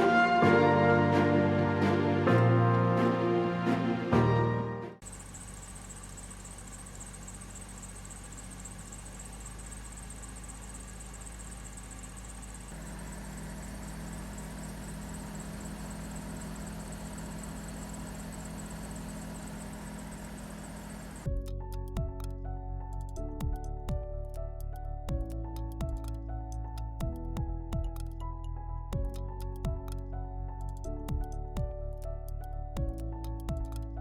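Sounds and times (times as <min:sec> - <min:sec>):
belt tensioner squealing: 0:05.0 - 0:21.3
car engine running: 0:05.0 - 0:22.3.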